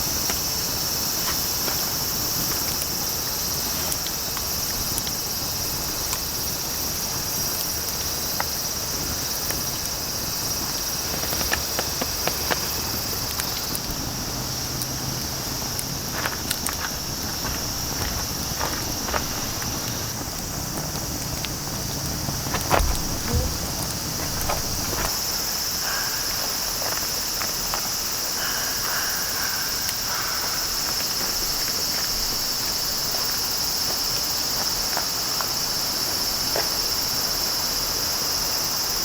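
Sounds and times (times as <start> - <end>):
insects droning: 0.0 - 39.0.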